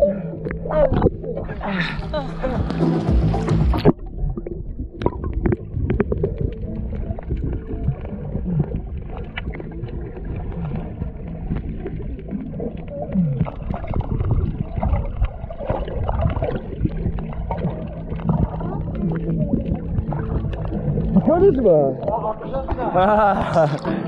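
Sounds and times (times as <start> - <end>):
low rumble: 0.0 - 23.6
water sloshing and gurgling: 0.0 - 24.0.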